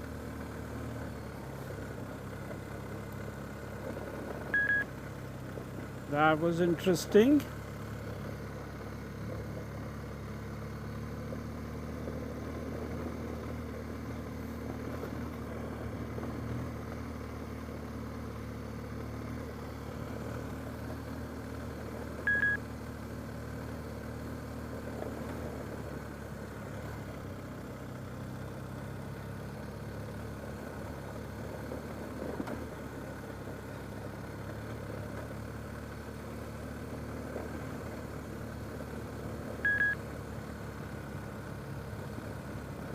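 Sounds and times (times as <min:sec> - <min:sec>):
car engine running: 0:00.0 - 0:42.9
tyre and road rumble: 0:00.0 - 0:42.9
short high electronic beep: 0:04.6 - 0:04.8, 0:22.3 - 0:22.6.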